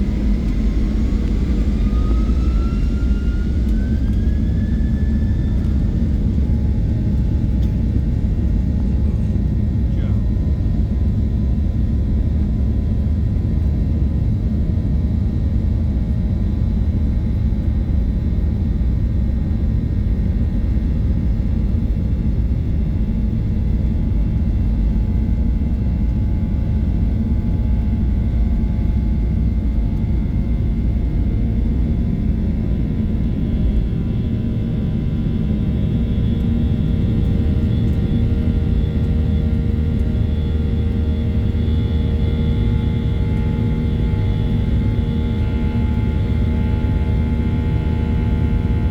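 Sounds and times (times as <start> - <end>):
thin steady whine tones: 0.0 - 9.1
jet engine rumble in cabin: 0.0 - 48.9.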